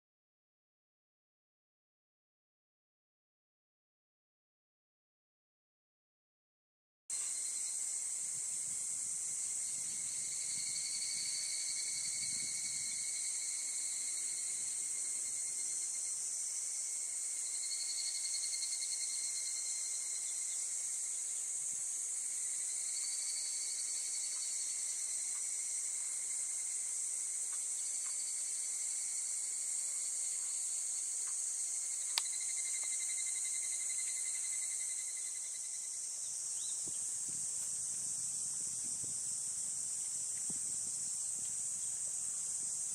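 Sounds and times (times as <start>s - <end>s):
shrill insect drone: 7.2s - 16.4s, 22.2s - 26.7s, 27.8s - 36.8s.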